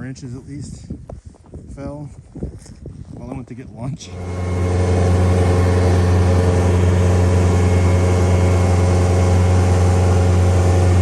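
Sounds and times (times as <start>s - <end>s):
tractor engine running: 4.1s - 11.0s.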